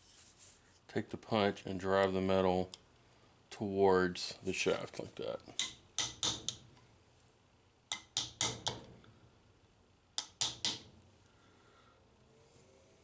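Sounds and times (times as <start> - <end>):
hammer tapping metal punch: 5.6 - 6.8, 7.9 - 9.2, 10.2 - 11.0.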